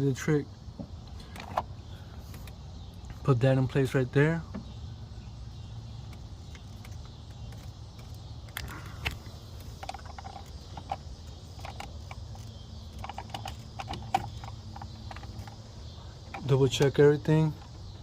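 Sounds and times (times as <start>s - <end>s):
steady low hum: 0.0s - 18.0s
light clicks and knocks of parts: 0.8s - 4.7s, 6.0s - 18.0s.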